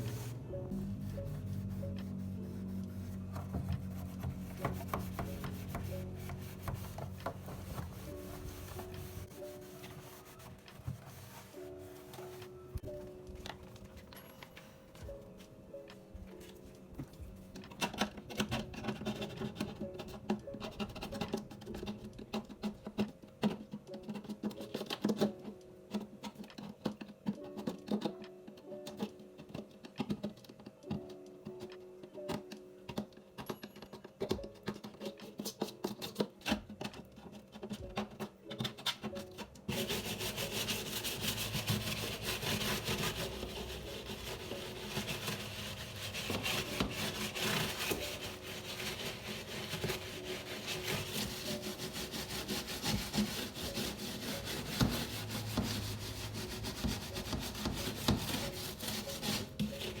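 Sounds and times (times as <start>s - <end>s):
scrubbing surfaces: 0.0s - 12.8s, 39.7s - 60.0s
soft background music: 0.0s - 60.0s
clicks and knocks of handling: 15.9s - 39.6s.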